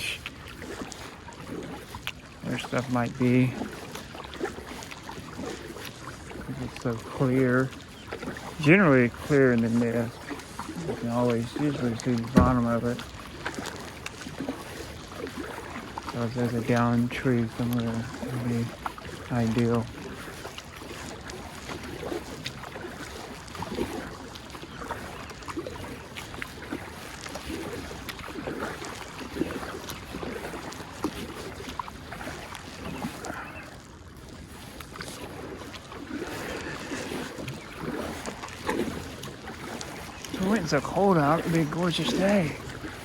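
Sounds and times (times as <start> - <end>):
paddle splashing in water: 0.0 - 43.0.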